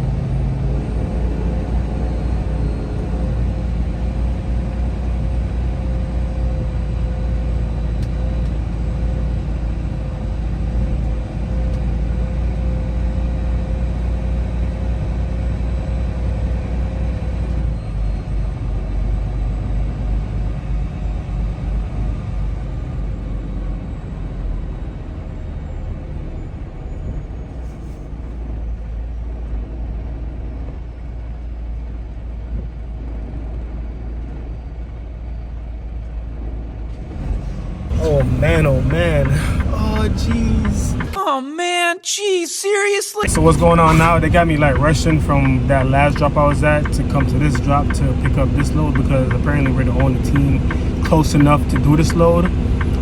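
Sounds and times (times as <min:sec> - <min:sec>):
truck engine and road rumble: 0:00.0 - 0:41.2, 0:43.2 - 0:53.0.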